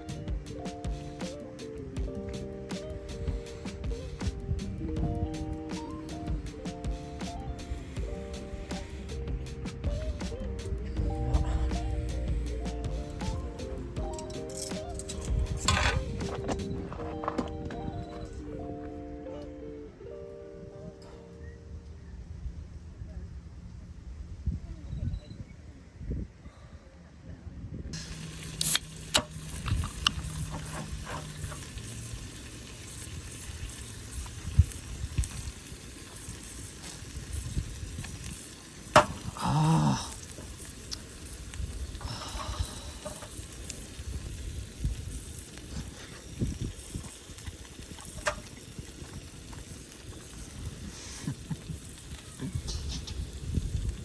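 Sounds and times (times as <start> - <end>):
food sizzling in a frying pan: 28.0 - 54.0.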